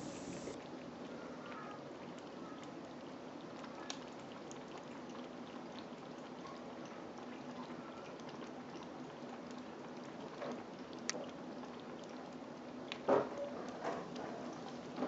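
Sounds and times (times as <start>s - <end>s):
low background hum: 0.0s - 3.0s
kitten lapping water: 2.0s - 15.0s.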